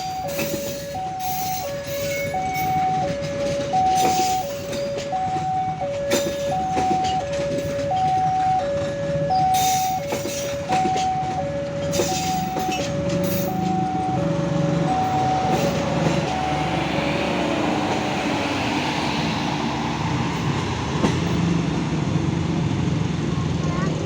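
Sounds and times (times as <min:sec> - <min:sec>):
level crossing alarm: 0:00.0 - 0:17.2
train wheels clicking over rail joints: 0:00.0 - 0:24.0.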